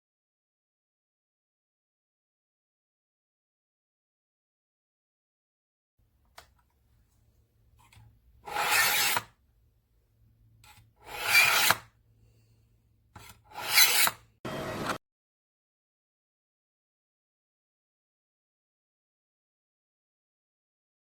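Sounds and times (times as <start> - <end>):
knife scraping through sharpener: 8.5 - 9.3, 10.6 - 11.9, 13.2 - 15.0.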